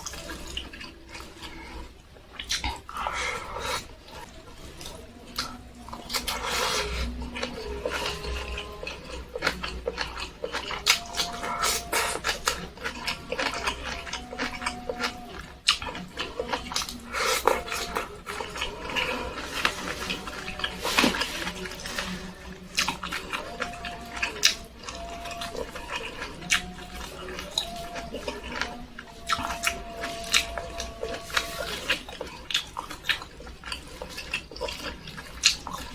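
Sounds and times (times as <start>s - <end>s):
wet chewing: 0.0s - 35.9s.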